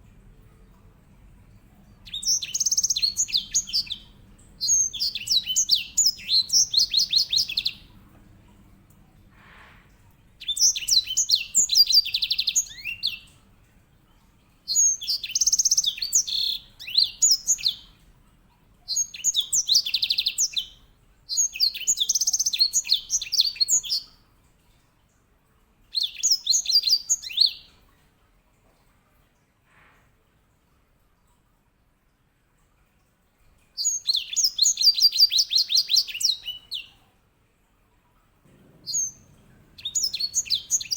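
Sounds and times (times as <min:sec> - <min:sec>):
finch singing trills: 0:02.1 - 0:07.8, 0:10.4 - 0:13.3, 0:33.8 - 0:37.0, 0:38.7 - 0:40.9.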